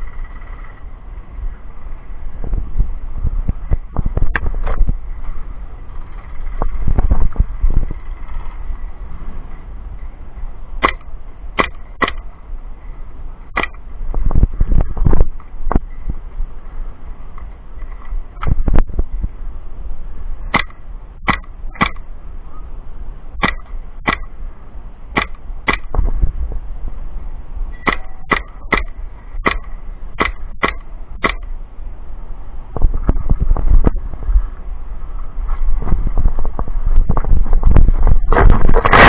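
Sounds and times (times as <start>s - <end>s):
wind rumbling on microphone: 0.0s - 39.0s
microphone handling noise: 2.3s - 19.4s, 23.4s - 31.7s, 32.7s - 39.0s
airsoft gun shots: 10.8s - 12.4s, 13.5s - 13.9s, 20.5s - 22.1s, 23.4s - 24.4s, 25.1s - 26.1s, 27.8s - 31.6s.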